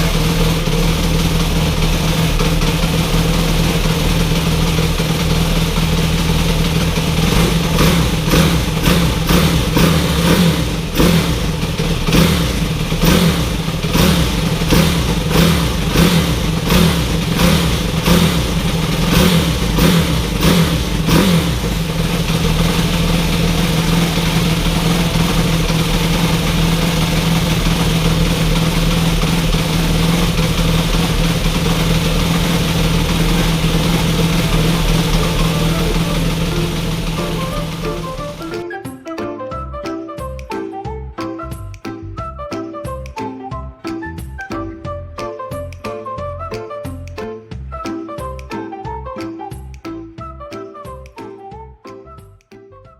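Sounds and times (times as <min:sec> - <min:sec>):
motorcycle engine idling and revving: 0:00.0 - 0:38.6.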